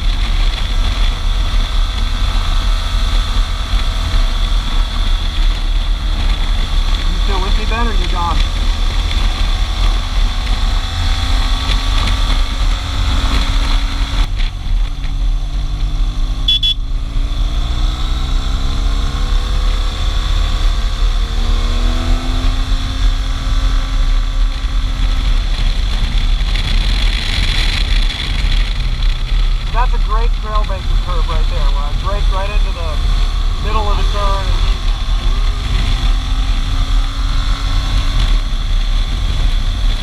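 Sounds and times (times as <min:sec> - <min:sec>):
motorcycle engine: 0:00.0 - 0:40.0
wind rumble on microphone: 0:00.0 - 0:40.0
high beep: 0:16.5 - 0:16.8.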